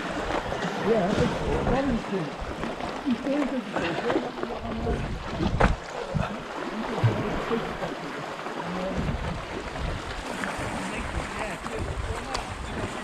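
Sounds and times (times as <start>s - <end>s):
sea washing against rocks: 0.0s - 13.0s
wind gusting over microphone: 4.7s - 6.3s, 9.0s - 13.0s.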